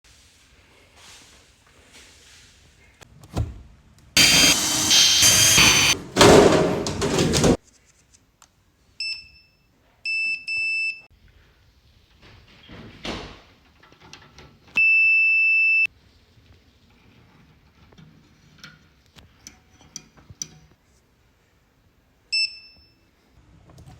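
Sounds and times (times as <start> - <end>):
loud noisy rush: 4.2 - 7.5
microwave beeping: 4.2 - 7.6
thump: 4.2 - 7.6.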